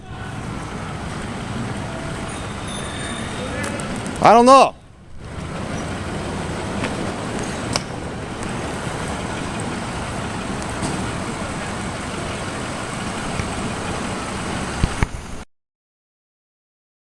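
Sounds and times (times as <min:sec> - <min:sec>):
vehicle engine idling: 0:00.0 - 0:15.4
outdoor hiss: 0:00.0 - 0:15.5.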